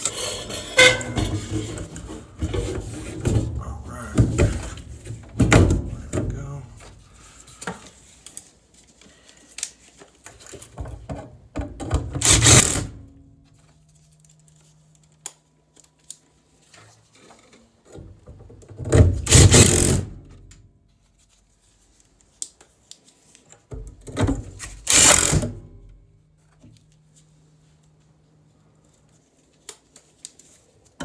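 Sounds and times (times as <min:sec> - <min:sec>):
loud rattling of tools: 0:12.2 - 0:12.9, 0:19.2 - 0:20.0, 0:24.8 - 0:25.5.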